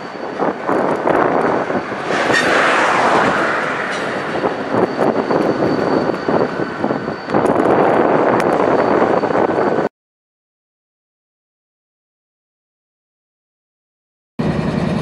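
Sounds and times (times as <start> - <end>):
train wheels clattering on rails: 0.0 - 2.7, 3.6 - 8.7
thin high steady tone: 0.0 - 9.9.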